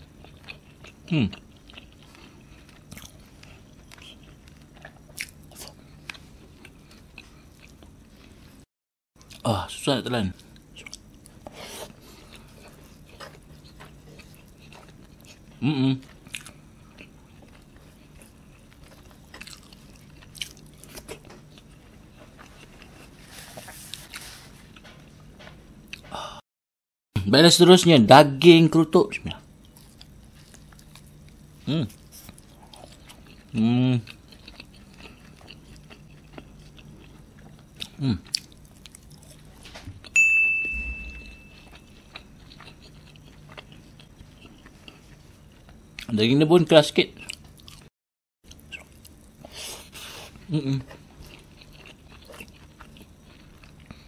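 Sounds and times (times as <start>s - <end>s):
person chewing meat: 0.0s - 8.6s, 9.2s - 9.4s, 10.3s - 25.1s, 29.5s - 40.1s, 40.8s - 46.1s, 47.2s - 47.9s, 48.5s - 54.0s
chewing and wet mouth clicks: 32.2s - 39.4s, 51.2s - 54.0s
ringing tone: 40.2s - 41.9s
short low hum: 40.2s - 41.9s.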